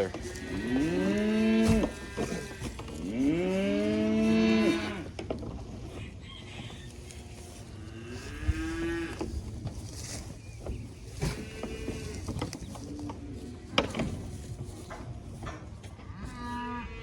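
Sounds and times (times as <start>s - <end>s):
cattle mooing: 0.0s - 5.2s, 7.1s - 9.3s, 16.0s - 17.0s.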